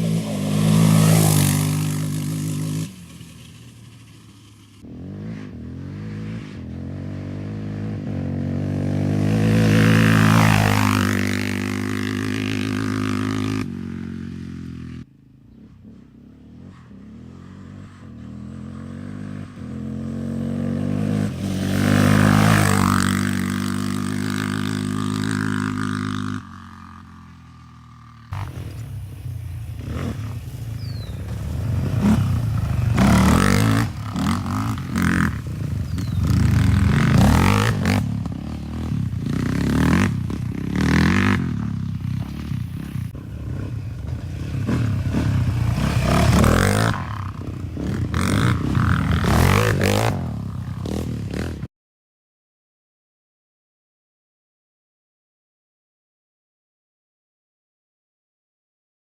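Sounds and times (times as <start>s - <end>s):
atv engine passing by: 0.0s - 51.7s
engine revving in bursts: 28.3s - 42.9s, 44.6s - 51.5s.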